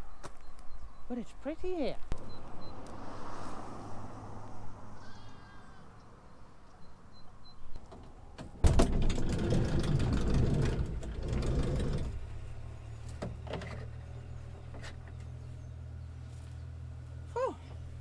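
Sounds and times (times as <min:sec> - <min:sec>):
vehicle engine and tyres: 0:01.6 - 0:18.0.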